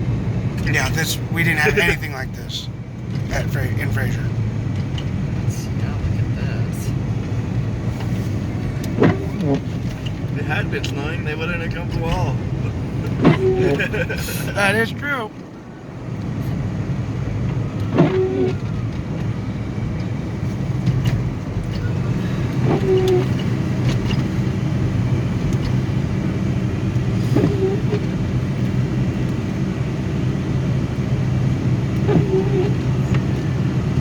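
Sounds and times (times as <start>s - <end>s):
car engine and tyre noise: 0.0s - 34.0s
windshield wipers squeak and thump: 7.3s - 15.2s, 17.4s - 30.0s, 30.9s - 34.0s.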